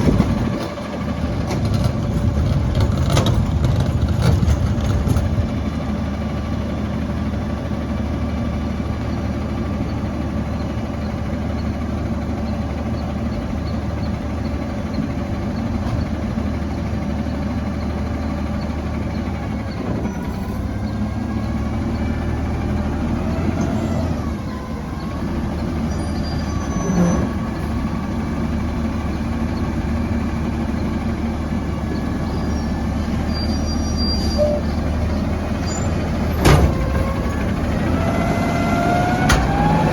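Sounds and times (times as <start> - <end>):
diesel truck engine running: 0.0 - 39.9
clunk: 1.4 - 5.5, 36.3 - 37.4, 39.2 - 39.7.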